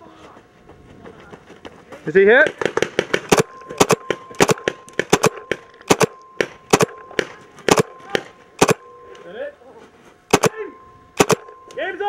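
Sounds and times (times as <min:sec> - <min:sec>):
paintball markers firing: 0:02.4 - 0:08.8, 0:10.3 - 0:10.6, 0:11.2 - 0:11.6
faint thin whine: 0:03.3 - 0:12.0.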